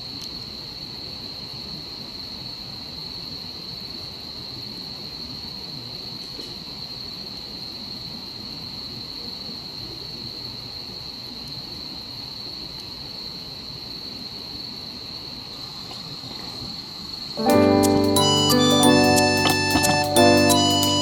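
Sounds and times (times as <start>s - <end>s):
night insects trilling: 0.0s - 19.4s.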